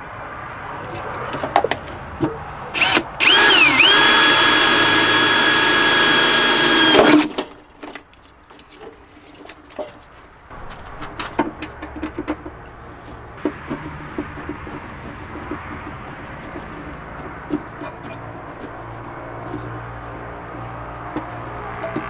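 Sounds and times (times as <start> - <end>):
handling clicks and knocks: 0.9 - 22.0
power drill running: 2.8 - 7.4.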